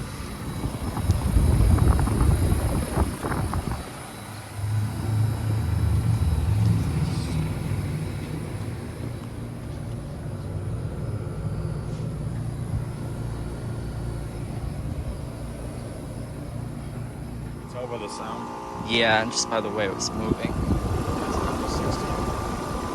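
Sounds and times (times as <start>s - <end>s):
compressor hum: 0.0s - 22.9s
condenser fan whir: 0.0s - 22.9s.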